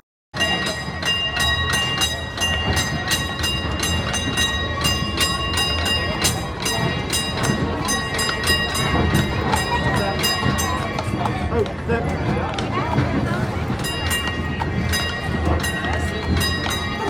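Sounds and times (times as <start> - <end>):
ringing metallic tone: 0.4 - 11.1
streetcar rapid clatter: 0.4 - 17.0.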